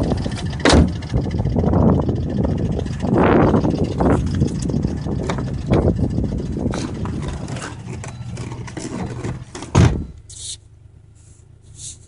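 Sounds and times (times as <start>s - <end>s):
car engine running: 0.0s - 12.0s
loud thump: 0.6s - 1.0s, 9.5s - 10.2s.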